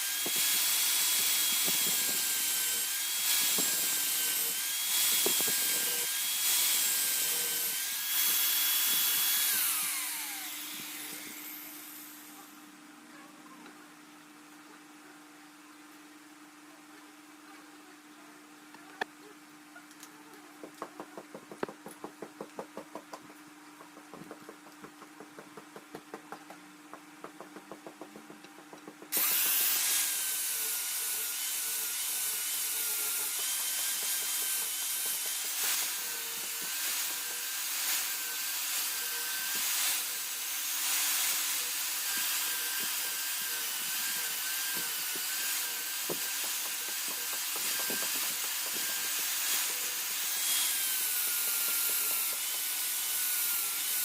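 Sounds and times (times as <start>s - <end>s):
electric grinder grinding steel: 0.0s - 12.5s, 29.1s - 54.0s.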